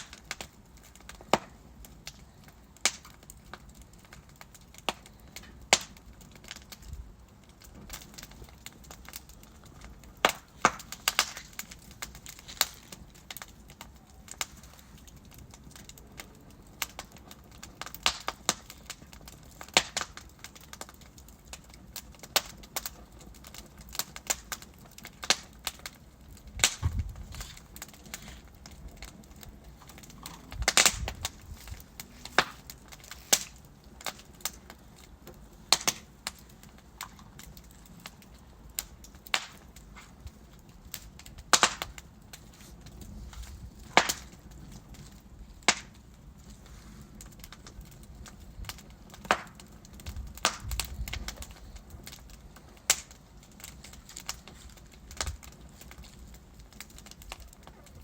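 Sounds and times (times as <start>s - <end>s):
logs crackling and popping: 0.0s - 58.0s
flames hissing: 23.8s - 38.2s.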